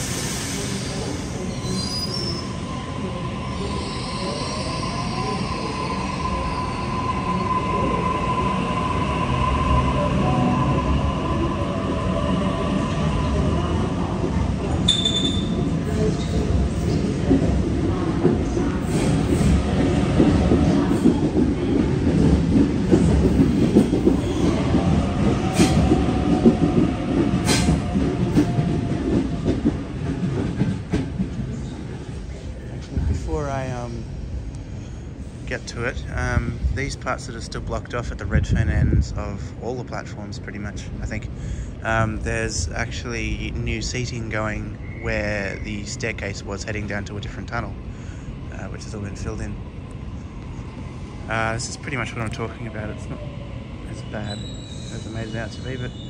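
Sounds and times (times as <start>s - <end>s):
train rumble: 0.0s - 56.0s
steel wheel squeal: 14.9s - 15.6s, 54.2s - 56.0s.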